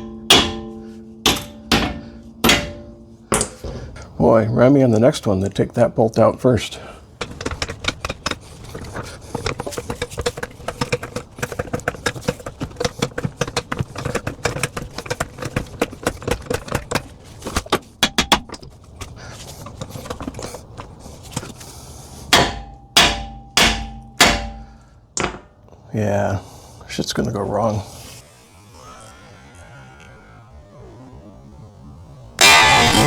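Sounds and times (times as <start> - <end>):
hammer blows on steel: 0.0 - 3.7, 22.3 - 25.5.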